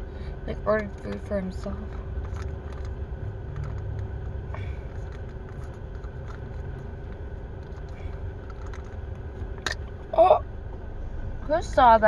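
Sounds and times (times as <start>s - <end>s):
car engine idling: 0.0s - 12.0s
thin constant hum: 0.0s - 12.0s.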